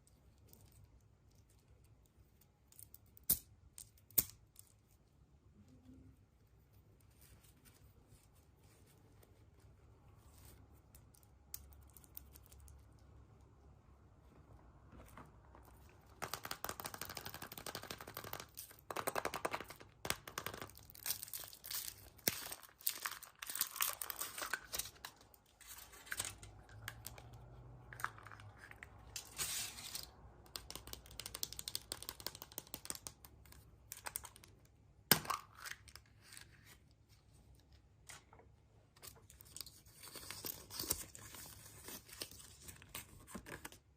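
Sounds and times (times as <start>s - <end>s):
wrapper tearing and crumpling: 20.7s - 27.1s.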